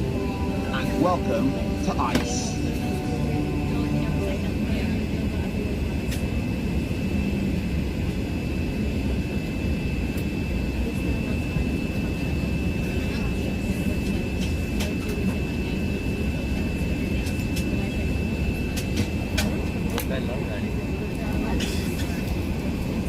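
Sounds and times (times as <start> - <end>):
thin high whine: 0.0 - 5.6
aircraft cabin engine rumble: 0.0 - 23.0.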